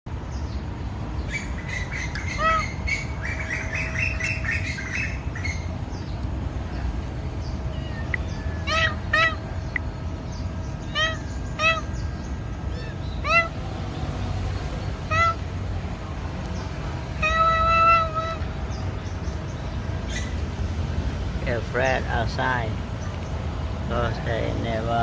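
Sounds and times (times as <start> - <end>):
kittens mewing: 7.7 - 9.5, 10.8 - 12.0, 12.6 - 13.6, 15.0 - 15.5, 17.1 - 18.5.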